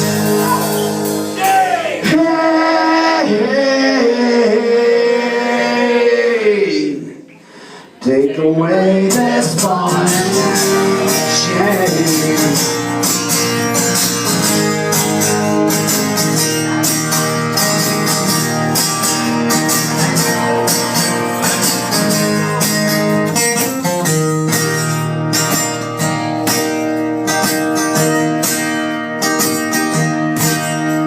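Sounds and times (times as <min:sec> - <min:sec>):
guitar strumming chords: 0:00.0 - 0:02.1, 0:09.0 - 0:31.0.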